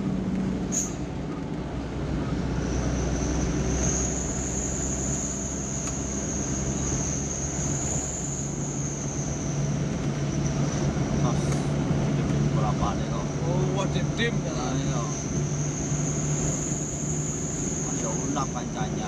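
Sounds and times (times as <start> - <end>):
road noise: 0.0 - 19.0
vehicle engine droning: 0.0 - 19.0
high-pitched whine: 2.2 - 11.5, 12.6 - 19.0.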